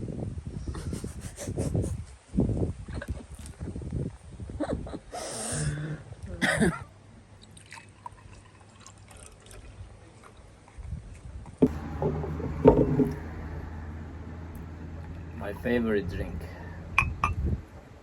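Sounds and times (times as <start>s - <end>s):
liquid trickling and splashing: 7.3s - 13.8s.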